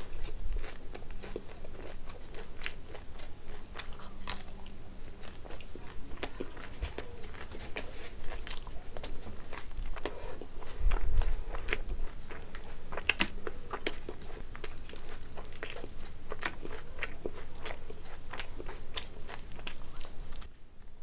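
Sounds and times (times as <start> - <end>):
chewing: 0.0 - 21.0.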